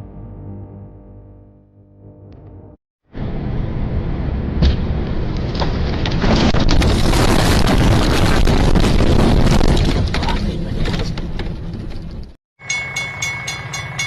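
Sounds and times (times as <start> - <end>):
truck crash crunching: 4.5 - 12.4
sharp cracks: 4.6 - 10.4.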